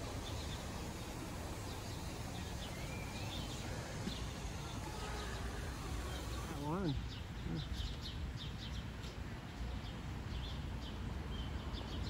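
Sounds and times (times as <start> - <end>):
faint bird chirps: 0.1 - 8.8.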